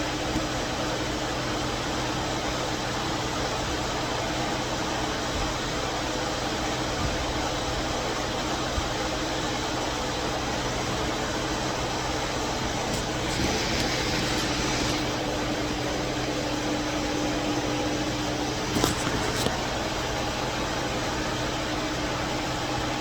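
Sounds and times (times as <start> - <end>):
machine hum with air rush: 0.0 - 23.0.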